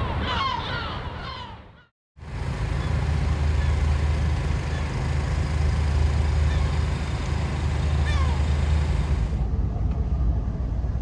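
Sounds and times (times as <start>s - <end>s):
low engine rumble: 2.2s - 11.0s.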